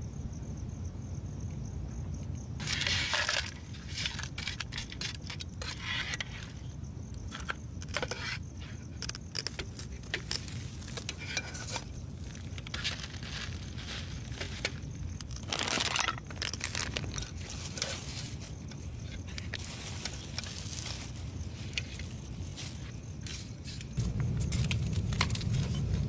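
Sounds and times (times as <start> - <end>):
objects being handled: 2.6 - 26.0
low rumble: 24.0 - 26.0.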